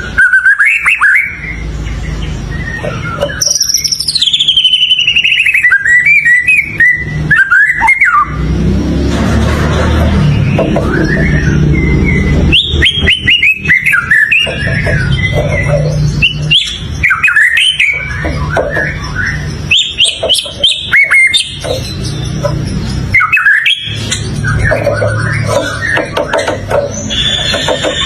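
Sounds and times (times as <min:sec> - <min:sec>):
bird whistling song: 0:00.0 - 0:08.5, 0:10.2 - 0:28.0.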